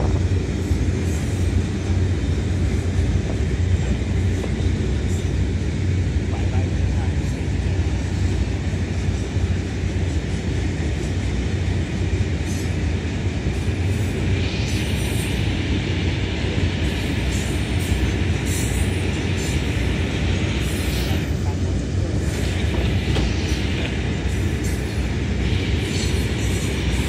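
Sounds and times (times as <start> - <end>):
heavy train wheel rumble: 0.0 - 27.0
high hiss: 12.2 - 21.3, 21.9 - 27.0.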